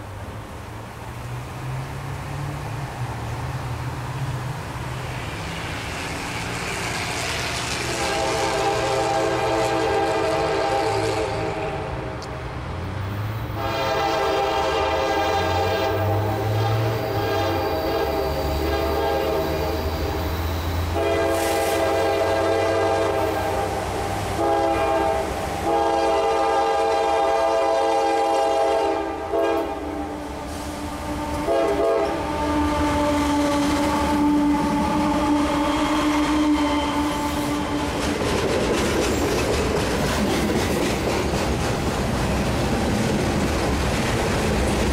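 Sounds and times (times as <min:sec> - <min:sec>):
engine and train rumble: 0:00.0 - 0:44.9
locomotive air horn: 0:07.7 - 0:12.1, 0:13.5 - 0:38.0
low horn chord: 0:07.9 - 0:11.9, 0:13.6 - 0:17.7, 0:24.4 - 0:29.9.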